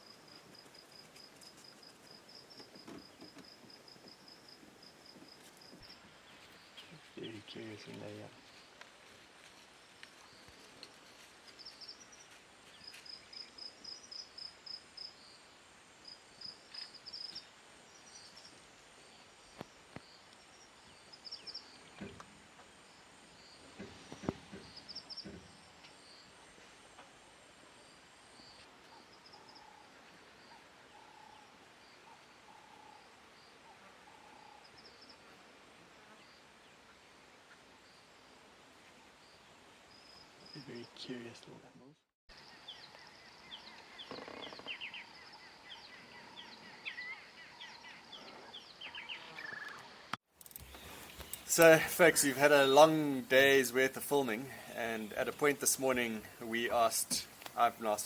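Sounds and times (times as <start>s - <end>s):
bird chirping: 42.3s - 53.3s.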